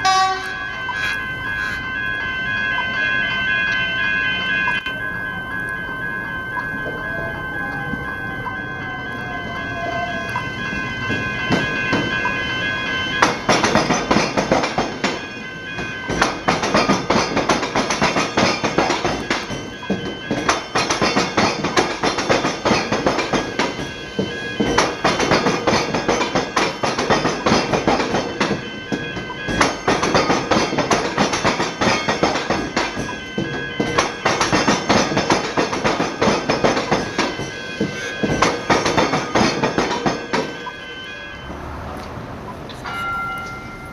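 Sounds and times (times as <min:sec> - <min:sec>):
steady high tone: 0:00.0 - 0:43.9
train wheels clattering over crossing: 0:10.3 - 0:40.8.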